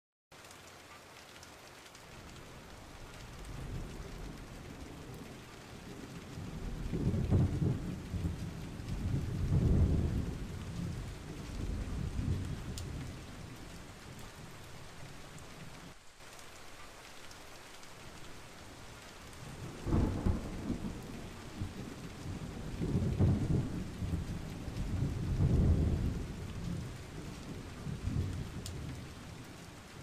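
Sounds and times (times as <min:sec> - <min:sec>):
steady rain: 0:00.3 - 0:30.0
rolling thunder: 0:02.7 - 0:15.8, 0:19.3 - 0:29.5.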